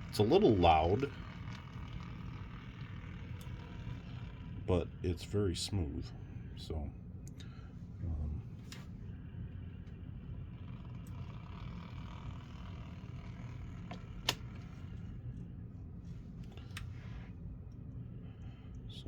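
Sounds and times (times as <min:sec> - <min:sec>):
model train motor whirring: 0:00.0 - 0:05.7, 0:08.7 - 0:15.2.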